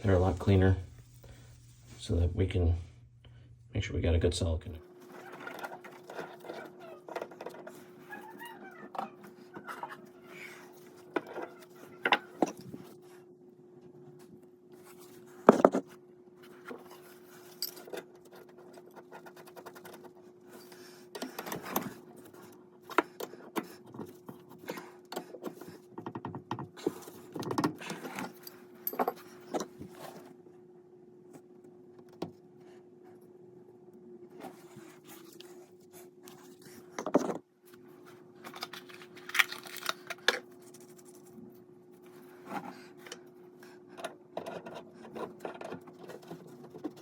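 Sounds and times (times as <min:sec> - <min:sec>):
steady low hum: 0:00.0 - 0:05.0.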